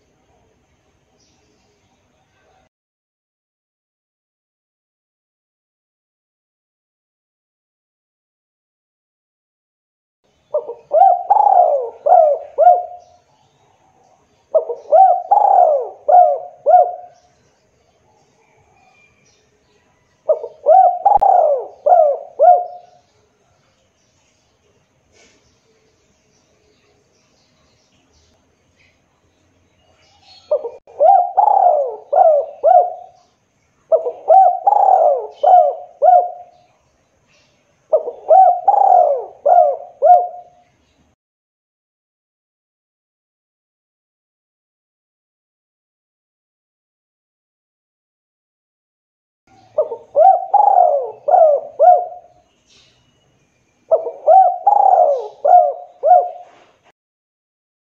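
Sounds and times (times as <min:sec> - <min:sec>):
dove cooing: 0:10.5 - 0:13.2, 0:14.5 - 0:17.4, 0:20.2 - 0:23.1, 0:30.2 - 0:33.3, 0:33.9 - 0:36.7, 0:37.9 - 0:40.6, 0:49.5 - 0:52.4, 0:53.9 - 0:56.9.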